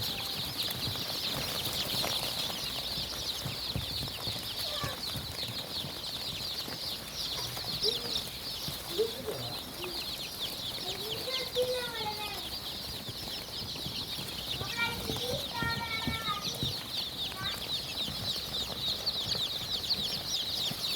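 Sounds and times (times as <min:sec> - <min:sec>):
chickens clucking: 0:00.0 - 0:20.9
chicks peeping: 0:00.0 - 0:20.9.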